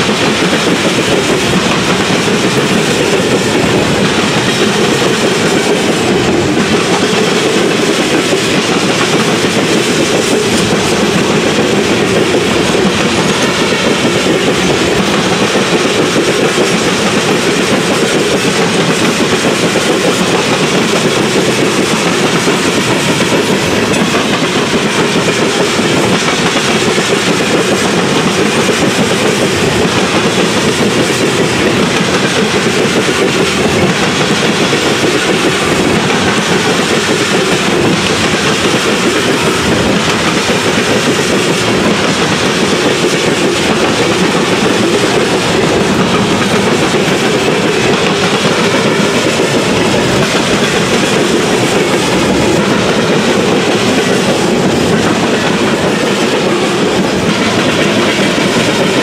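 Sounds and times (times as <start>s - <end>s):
steel wheels rumbling on rails: 0.0s - 59.0s.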